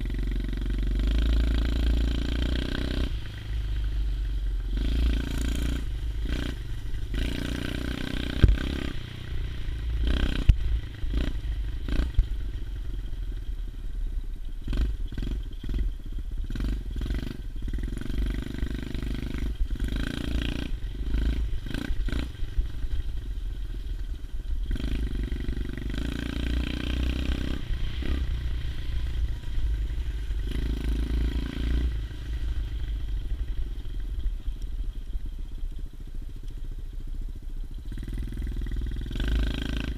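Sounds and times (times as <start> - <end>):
motorbike engine revving: 0.0 - 12.4, 14.6 - 23.2, 24.6 - 34.0, 37.9 - 39.9.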